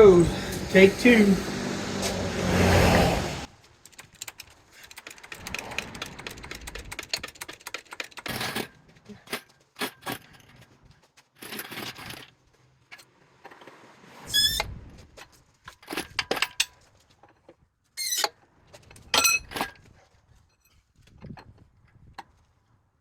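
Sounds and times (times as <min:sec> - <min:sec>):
metal parts and tools clinking: 0:03.8 - 0:13.7, 0:15.6 - 0:19.9.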